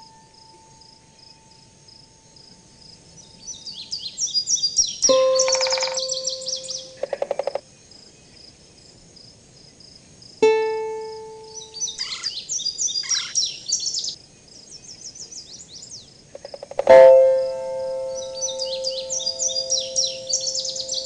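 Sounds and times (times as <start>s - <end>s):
birds chirping and trilling: 2.3s - 9.0s, 11.5s - 21.0s
ringing musical note: 5.1s - 7.0s, 16.9s - 21.0s.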